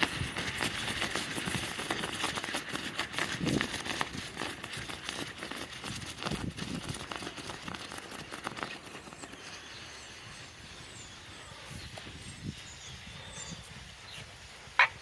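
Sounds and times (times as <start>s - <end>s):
molten metal crackling and popping: 0.0s - 9.6s.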